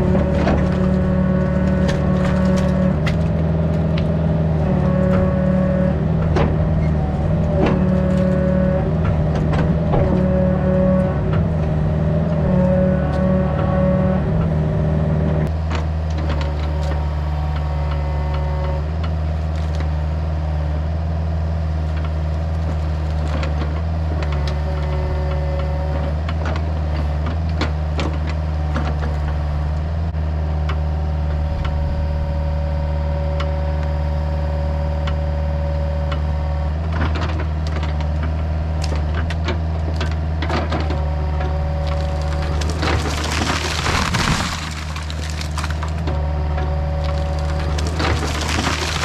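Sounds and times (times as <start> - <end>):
wood cracking and splintering: 0.0 - 11.8, 38.8 - 49.0
excavator engine with hydraulic whine: 0.0 - 49.0
timber crashing down: 41.8 - 46.1, 47.0 - 49.0.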